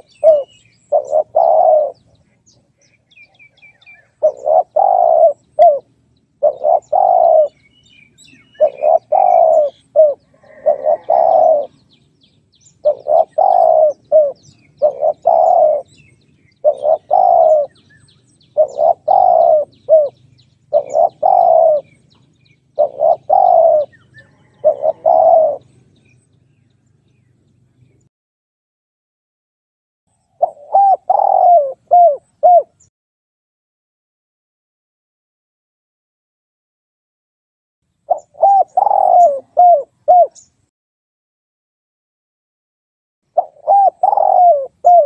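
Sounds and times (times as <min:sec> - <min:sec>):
dove cooing: 0:00.0 - 0:12.0, 0:12.7 - 0:26.0, 0:30.4 - 0:32.9, 0:38.1 - 0:40.5, 0:43.4 - 0:45.0.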